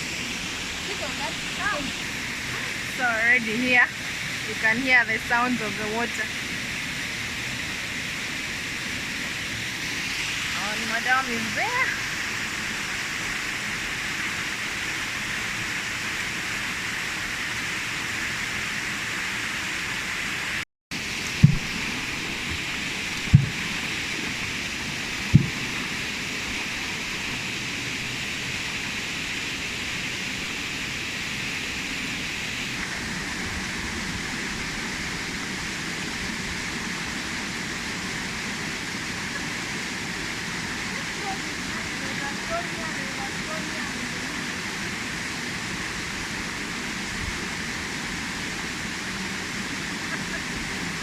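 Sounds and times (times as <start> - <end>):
waterfall roaring: 0.0 - 51.0
dull low thumps: 21.3 - 23.8, 25.2 - 25.9.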